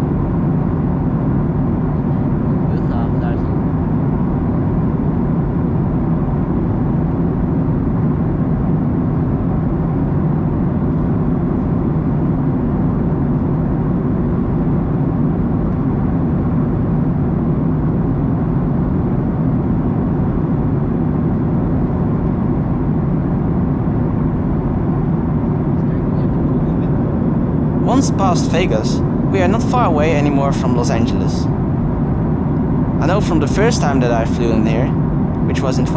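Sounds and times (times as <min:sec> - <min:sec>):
airplane cabin engine roar: 0:27.3 - 0:35.9.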